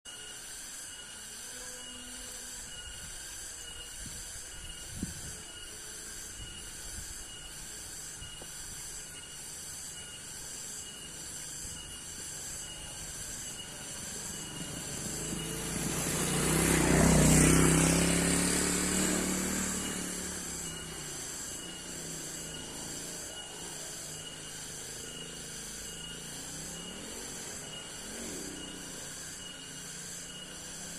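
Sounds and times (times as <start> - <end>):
insects chirping: 0.1 - 30.9
motor vehicle passing: 13.0 - 30.9.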